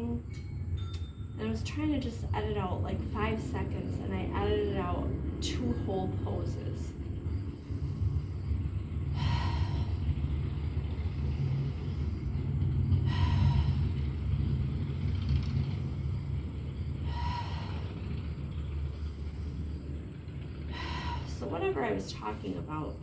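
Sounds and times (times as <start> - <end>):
low rumble: 0.0 - 23.0
hissy breath gasp: 9.1 - 10.4, 13.0 - 14.3, 17.0 - 19.7, 20.6 - 21.4.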